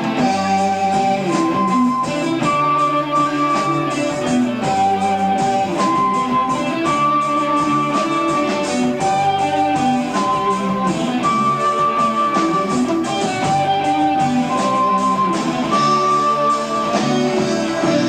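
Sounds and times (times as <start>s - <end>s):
rock band playing live: 0.0s - 18.0s.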